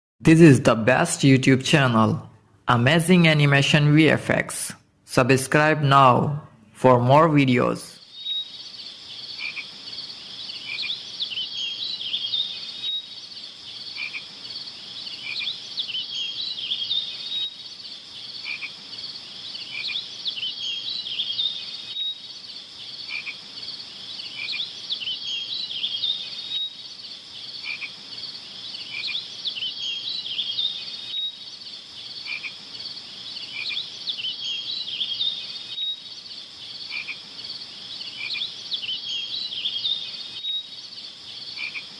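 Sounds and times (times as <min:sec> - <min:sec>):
chorus of small calling animals: 0:07.2 - 0:41.9.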